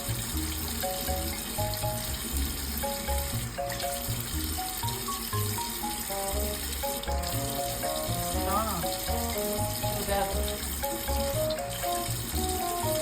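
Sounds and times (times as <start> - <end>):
background music with bass line: 0.0 - 13.0
tap water running into sink: 0.0 - 13.0.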